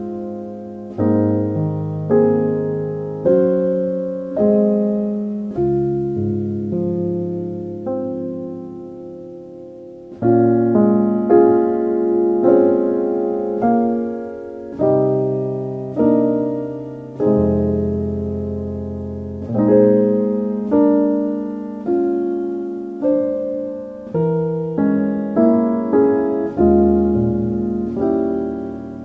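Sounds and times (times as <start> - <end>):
soft slow piano music: 0.0 - 29.0.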